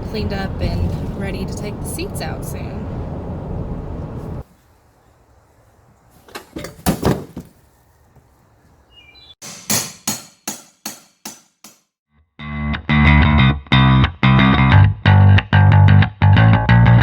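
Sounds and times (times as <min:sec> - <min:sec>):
vehicle driving noise: 0:00.0 - 0:06.5
sharp knocks: 0:09.4 - 0:11.8.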